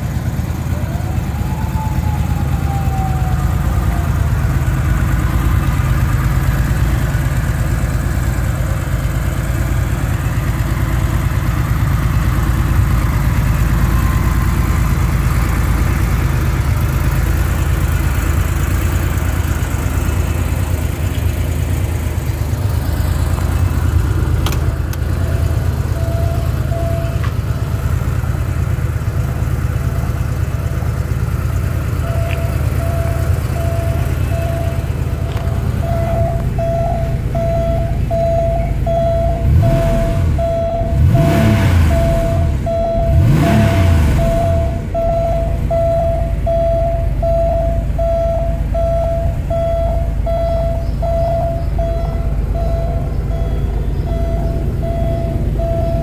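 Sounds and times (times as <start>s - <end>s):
car engine idling and revving: 0.0s - 56.0s
repeating electronic beep: 32.0s - 56.0s.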